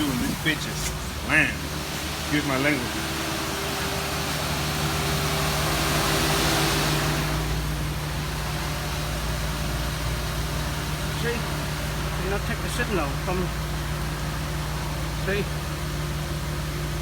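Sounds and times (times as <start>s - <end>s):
hissing rush: 0.0s - 4.0s
car engine idling: 0.0s - 17.0s.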